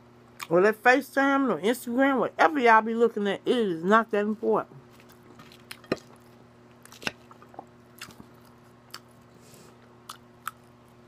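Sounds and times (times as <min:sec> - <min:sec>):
chewing crunchy lettuce: 0:04.8 - 0:11.0.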